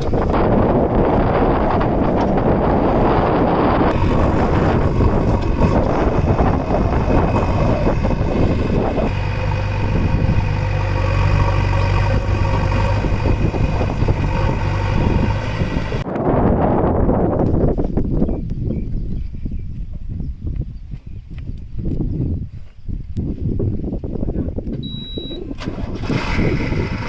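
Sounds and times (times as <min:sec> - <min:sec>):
diesel engine running: 0:00.0 - 0:16.1, 0:25.6 - 0:27.0
wind buffeting microphone: 0:00.0 - 0:27.0.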